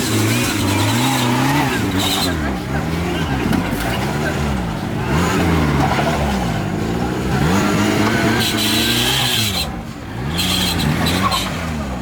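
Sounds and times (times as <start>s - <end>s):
off-road engine revving: 0.0s - 12.0s.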